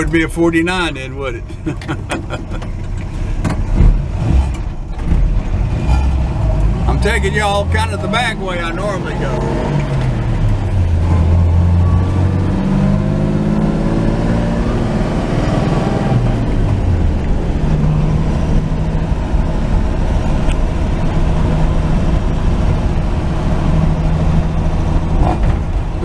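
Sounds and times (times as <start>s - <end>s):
road noise: 0.0s - 26.0s
truck engine running: 0.0s - 26.0s.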